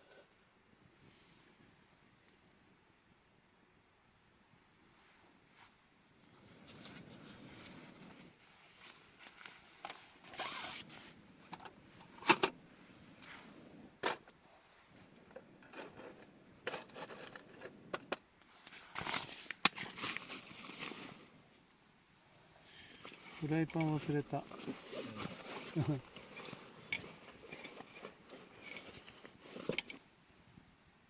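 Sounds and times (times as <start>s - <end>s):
gear rustling and scraping: 6.4s - 12.5s, 15.3s - 17.9s, 22.7s - 30.0s
zipper sounds: 10.3s - 10.9s, 24.4s - 29.8s.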